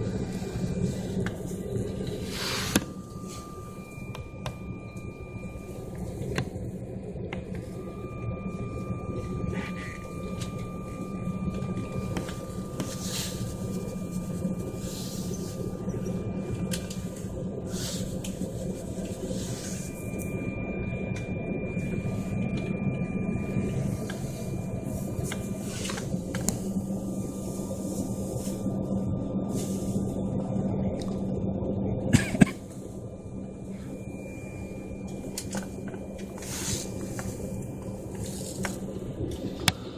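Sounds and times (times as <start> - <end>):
aircraft cabin drone: 0.0 - 39.9
thin steady whine: 0.0 - 39.9.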